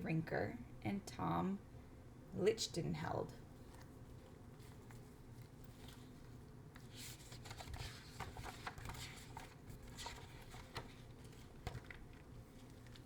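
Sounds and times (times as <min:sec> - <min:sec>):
paper rustling: 0:03.6 - 0:13.0.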